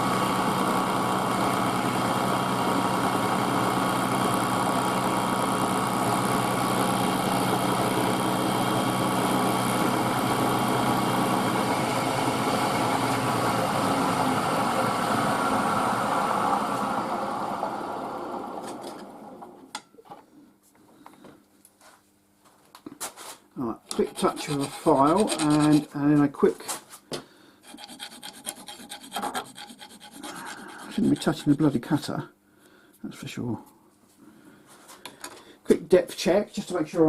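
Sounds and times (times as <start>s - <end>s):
milling machine running: 0.0s - 19.7s.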